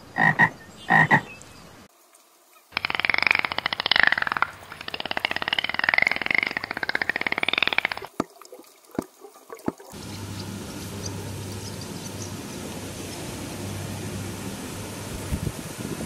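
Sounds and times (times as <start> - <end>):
dolphin clicks: 2.8 - 8.3
steady hiss with low hum: 10.0 - 16.0.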